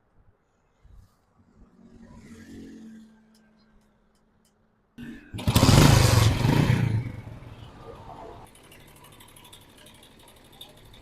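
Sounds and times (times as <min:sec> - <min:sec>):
motorcycle engine revving: 0:05.0 - 0:11.0
motorcycle engine idling: 0:05.4 - 0:11.0.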